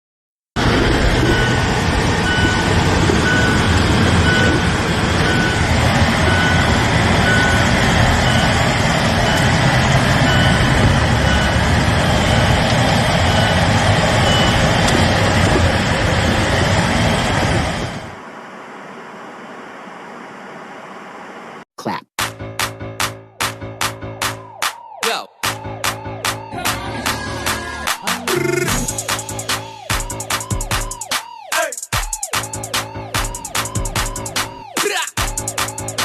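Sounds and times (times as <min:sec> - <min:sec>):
loud vehicle noise: 0:00.6 - 0:21.6, 0:25.8 - 0:30.8
reversing alarm beeps: 0:01.2 - 0:14.8.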